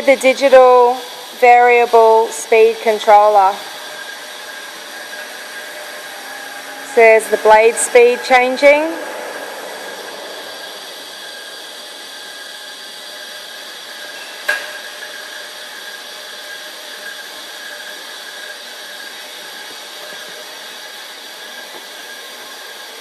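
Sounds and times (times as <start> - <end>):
bandsaw cutting metal: 0.0 - 23.0.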